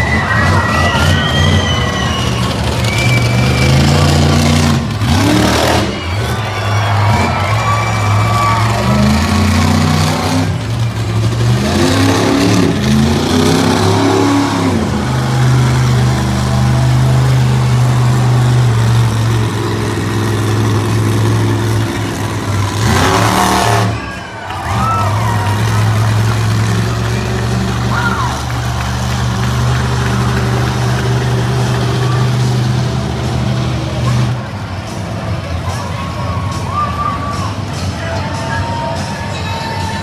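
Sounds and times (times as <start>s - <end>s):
monster truck engine revving: 0.0s - 38.3s.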